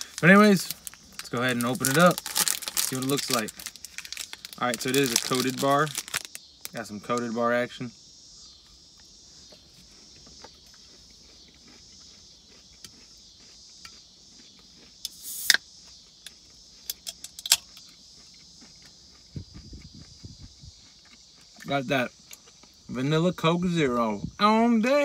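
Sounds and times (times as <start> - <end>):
person chewing: 0.0 - 6.5, 8.5 - 22.9
wrapper crinkling clicks: 0.0 - 6.8
insect trill: 0.0 - 25.0.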